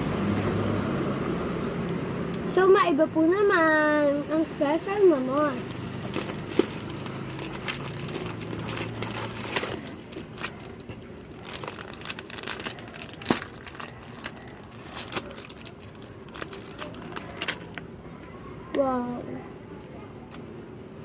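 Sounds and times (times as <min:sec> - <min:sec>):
plastic wrapper crinkling: 0:05.2 - 0:17.8.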